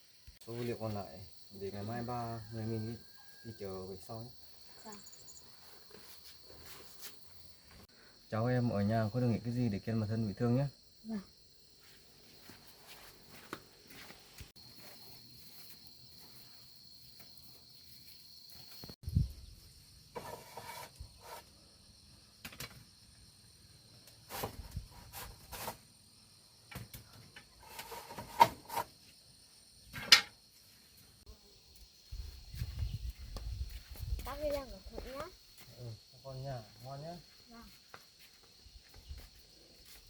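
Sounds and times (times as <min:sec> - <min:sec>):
high insect chirring: 0:00.0 - 0:26.6, 0:31.3 - 0:40.0.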